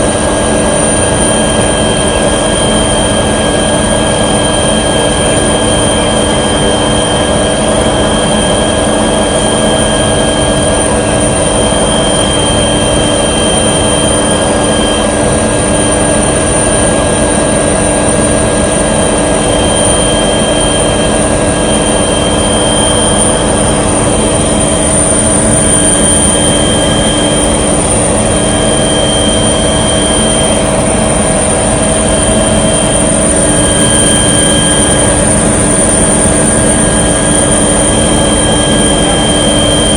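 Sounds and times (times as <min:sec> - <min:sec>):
small aircraft cabin drone: 0:00.0 - 0:39.9.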